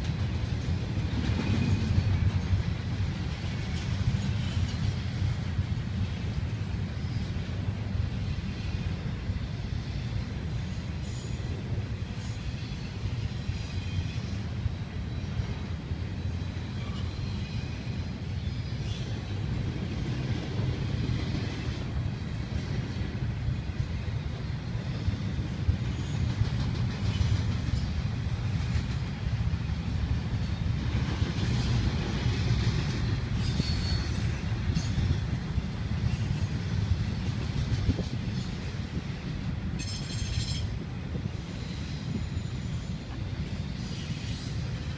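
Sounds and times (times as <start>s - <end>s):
freight train rumbling: 0.0s - 44.9s
train wheels squealing: 0.0s - 44.9s.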